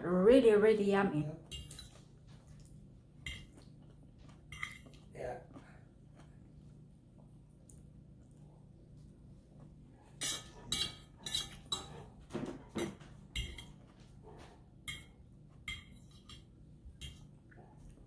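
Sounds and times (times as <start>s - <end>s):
cutlery scraping a plate: 1.5s - 2.0s, 4.4s - 5.0s, 10.1s - 13.8s, 14.4s - 17.3s.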